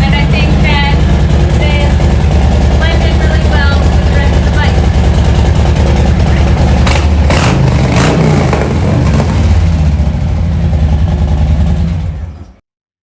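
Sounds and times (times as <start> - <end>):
motorcycle engine running: 0.0 - 12.6.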